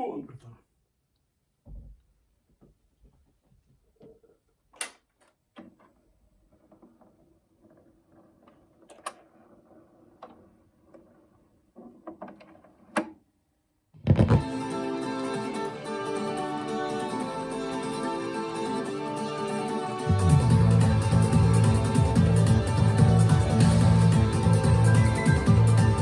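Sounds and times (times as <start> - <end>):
turntable clicks and knocks: 14.0 - 14.4.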